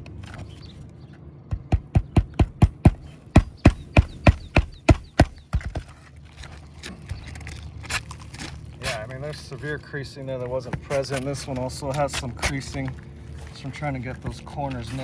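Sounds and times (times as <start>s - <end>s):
hammer striking roofing nails: 1.5s - 5.9s.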